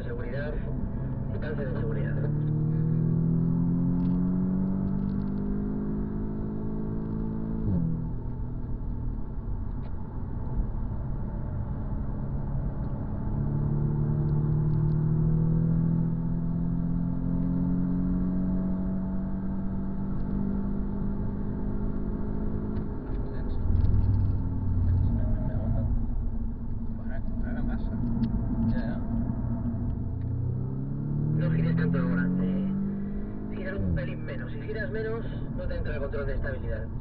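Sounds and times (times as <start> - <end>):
low rumble: 0.0 - 4.1, 22.9 - 37.0
car engine accelerating: 0.0 - 37.0.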